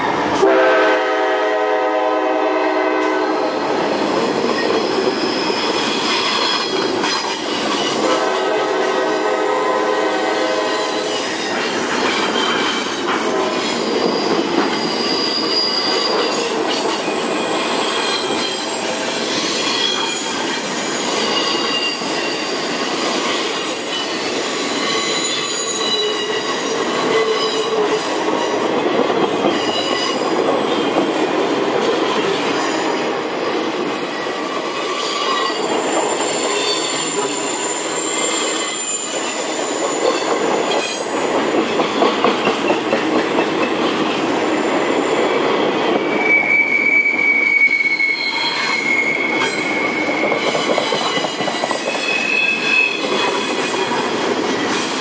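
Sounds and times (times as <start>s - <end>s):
train wheels rumbling on rails: 0.0s - 55.0s
high-pitched wheel squeal: 12.4s - 27.8s, 33.1s - 41.2s, 46.0s - 53.5s.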